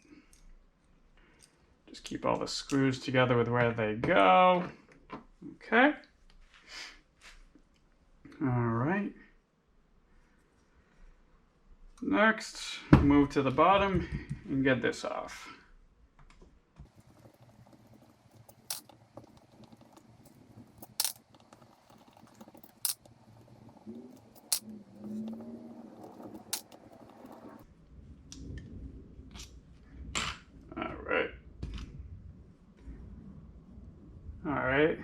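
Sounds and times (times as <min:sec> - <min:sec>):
handling noise: 0:16.8 - 0:27.6
metal carburetor parts clicking: 0:16.9 - 0:27.6.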